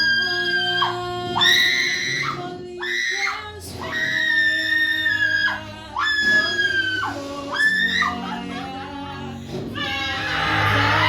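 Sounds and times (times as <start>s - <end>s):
person screaming: 0.0s - 8.8s
soft background music: 0.0s - 11.0s.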